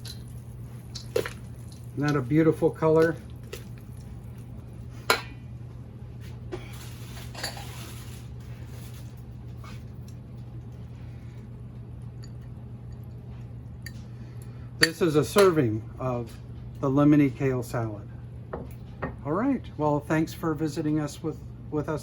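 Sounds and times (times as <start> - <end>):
steady low hum: 0.0 - 22.0
salad leaves scraping and rustling: 6.7 - 9.8.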